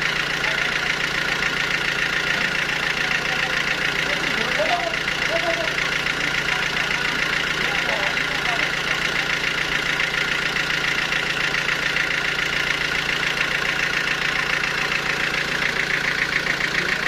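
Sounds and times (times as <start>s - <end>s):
sawmill machinery running: 0.0s - 17.0s.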